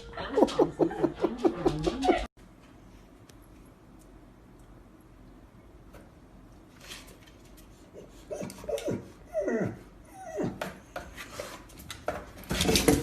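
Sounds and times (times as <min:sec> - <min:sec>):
dog whining: 0:08.3 - 0:10.9.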